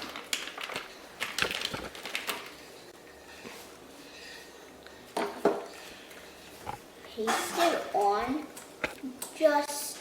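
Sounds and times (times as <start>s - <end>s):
paper rustling: 0.0s - 2.6s.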